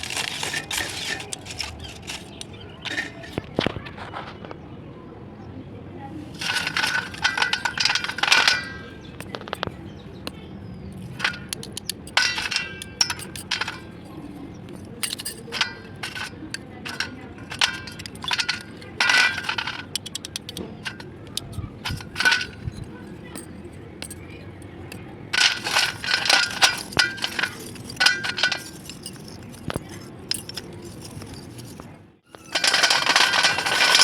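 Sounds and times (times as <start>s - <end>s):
clay pieces crunching and cracking: 0.0s - 3.8s.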